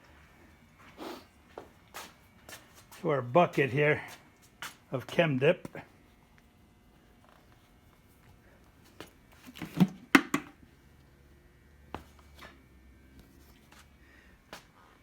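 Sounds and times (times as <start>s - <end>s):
handling knocks and clicks: 9.0s - 10.6s.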